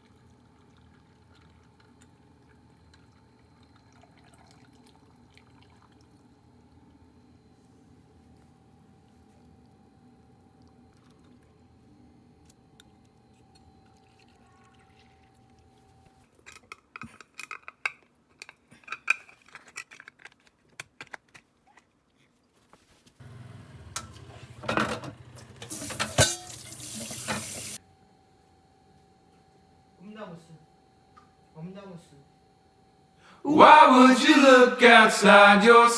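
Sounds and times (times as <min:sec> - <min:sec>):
dishes and utensils clinking: 0:25.6 - 0:27.6
tap running into sink: 0:25.6 - 0:27.8.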